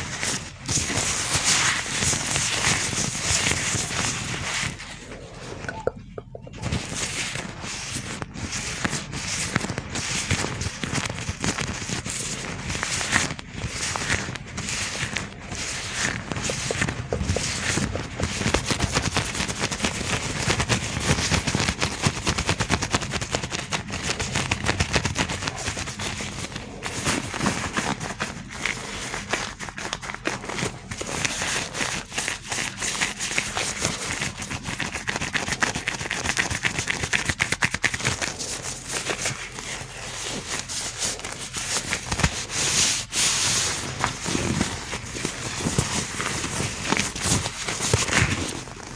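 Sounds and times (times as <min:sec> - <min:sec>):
gloved hands crinkling: 0:00.1 - 0:48.9.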